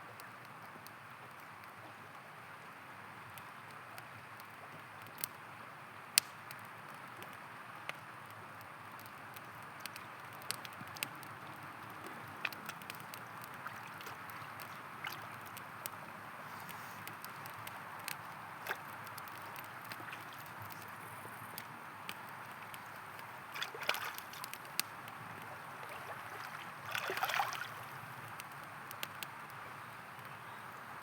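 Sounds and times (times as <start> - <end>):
campfire crackling and popping: 0.1 - 30.8
river rushing: 25.7 - 27.9.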